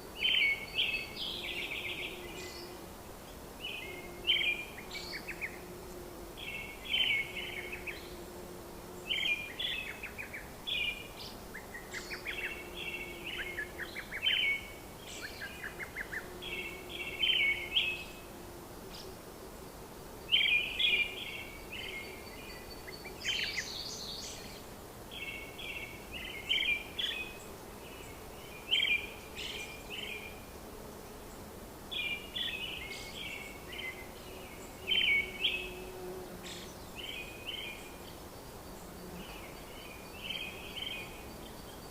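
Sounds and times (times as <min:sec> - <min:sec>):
birds chirping and singing: 0:09.1 - 0:18.2, 0:31.9 - 0:38.0.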